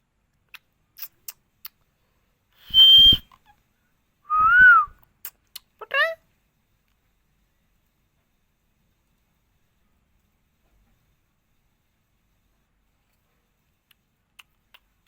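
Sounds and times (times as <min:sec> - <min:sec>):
parrot whistling: 0:02.6 - 0:03.2, 0:04.3 - 0:04.9.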